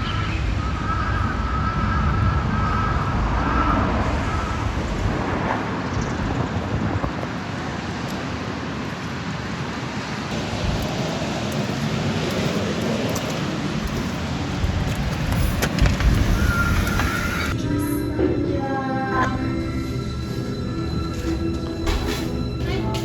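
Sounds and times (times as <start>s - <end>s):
vehicle rumble: 0.0s - 17.6s
steady rain: 2.5s - 17.6s.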